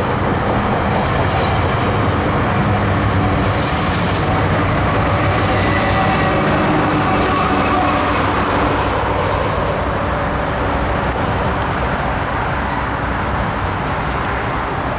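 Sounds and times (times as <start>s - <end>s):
commuter train rumbling: 0.0s - 14.9s.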